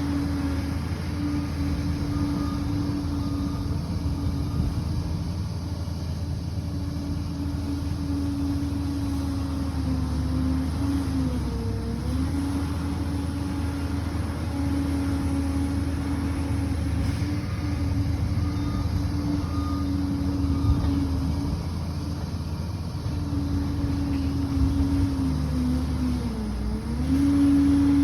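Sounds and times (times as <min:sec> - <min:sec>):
bulldozer diesel engine droning: 0:00.0 - 0:28.0.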